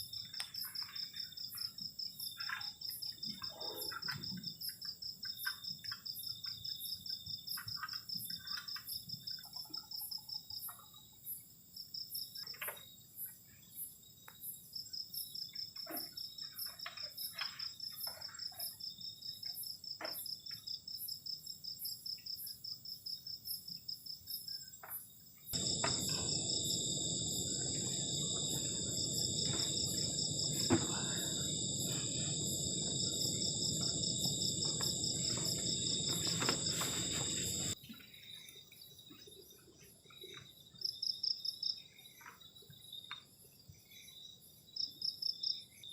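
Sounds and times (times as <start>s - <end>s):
crickets and insects trilling: 25.5s - 37.8s
steady hiss: 25.6s - 37.8s.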